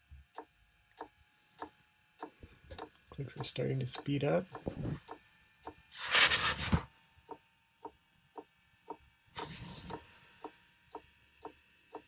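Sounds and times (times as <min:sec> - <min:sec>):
rustling noise: 0:06.0 - 0:06.8.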